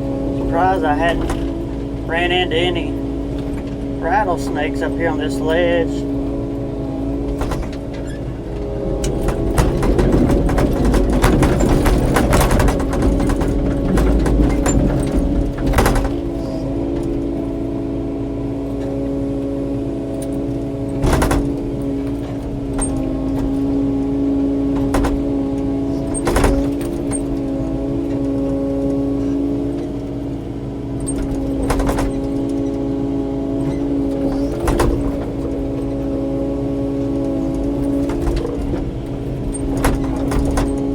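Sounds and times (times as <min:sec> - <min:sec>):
excavator diesel engine running: 0:00.0 - 0:40.9
sharp cracks and knocks: 0:07.3 - 0:08.1, 0:09.0 - 0:17.2, 0:21.0 - 0:23.7, 0:24.7 - 0:30.2, 0:31.0 - 0:32.7, 0:33.6 - 0:36.0, 0:37.3 - 0:40.9.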